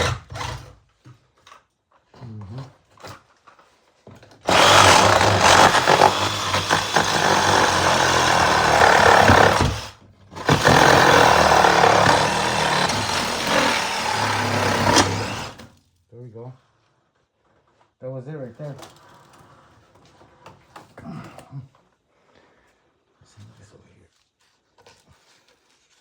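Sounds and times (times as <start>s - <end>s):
power tool running: 4.5s - 15.7s.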